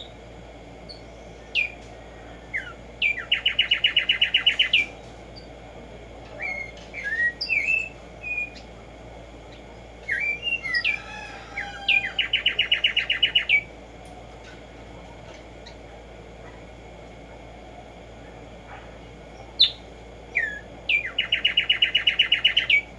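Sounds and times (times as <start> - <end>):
sparrow singing rapid trills: 0.8 - 5.5, 6.3 - 8.7, 9.5 - 13.7, 19.4 - 22.9
slurred bird chirps: 2.6 - 5.0, 10.0 - 13.7, 19.6 - 22.9.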